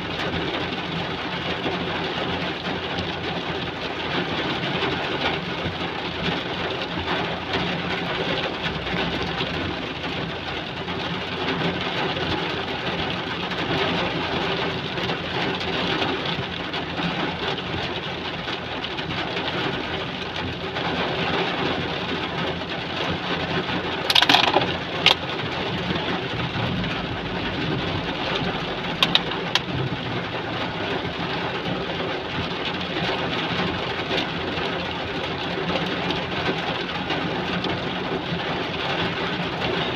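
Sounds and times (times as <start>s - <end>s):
heavy rain falling: 0.0s - 39.9s
sharp clicks: 29.0s - 29.7s.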